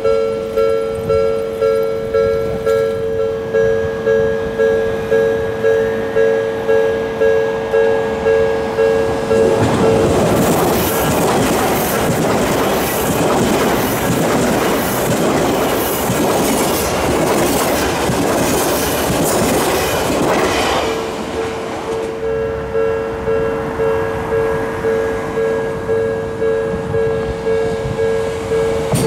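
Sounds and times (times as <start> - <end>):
level-crossing alarm ringing: 0.0 - 29.0
train wheels clacking over rail joints: 9.2 - 22.4, 28.8 - 29.0.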